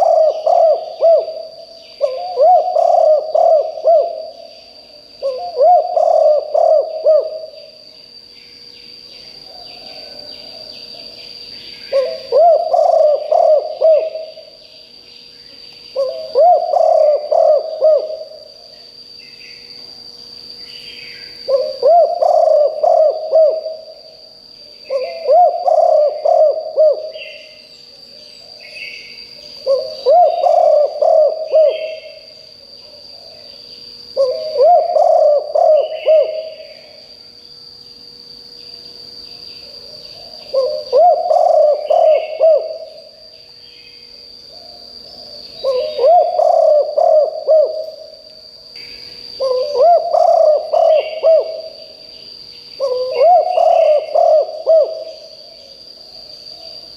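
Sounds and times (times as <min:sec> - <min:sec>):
dove cooing: 0:00.0 - 0:07.8, 0:09.4 - 0:11.1, 0:11.8 - 0:14.6, 0:15.9 - 0:18.7, 0:21.4 - 0:24.0, 0:24.8 - 0:27.6, 0:29.6 - 0:33.4, 0:34.1 - 0:37.0, 0:39.6 - 0:43.2, 0:44.5 - 0:48.2, 0:49.4 - 0:52.0, 0:52.8 - 0:55.5
faint bird chirps: 0:20.6 - 0:37.2, 0:37.8 - 0:48.2, 0:48.8 - 0:56.9.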